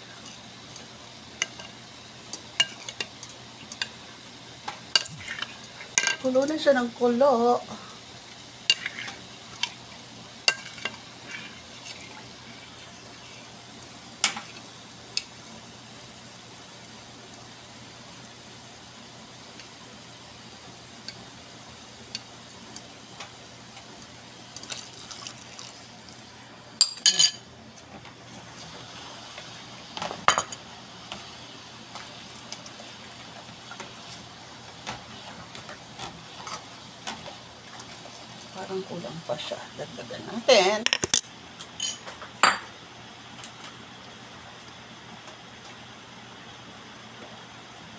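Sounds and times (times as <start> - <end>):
sauce boiling in a pot: 0.0 - 47.9
spoon clinking against pot: 26.8 - 27.4.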